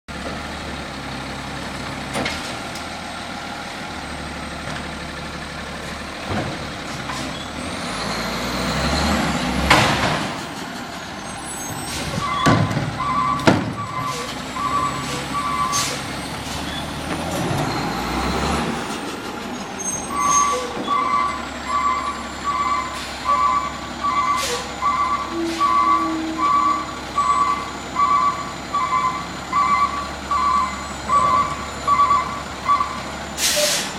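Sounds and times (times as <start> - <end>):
garbage truck engine running: 0.1 - 33.9
reversing alarm beeping: 11.3 - 16.1, 19.9 - 33.8
loud air hiss: 33.4 - 33.9.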